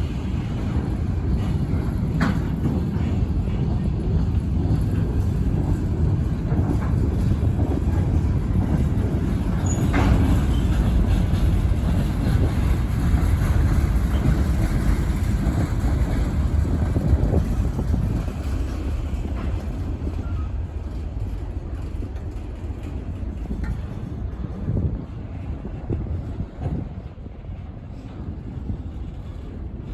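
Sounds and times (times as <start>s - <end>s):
freight train rumbling by: 0.0s - 29.9s
train wheel squeal: 4.5s - 24.8s.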